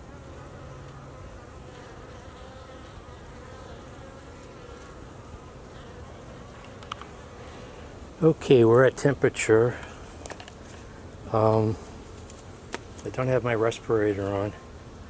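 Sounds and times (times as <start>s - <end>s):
bees buzzing: 0.0s - 8.2s
faint click: 6.6s - 7.1s.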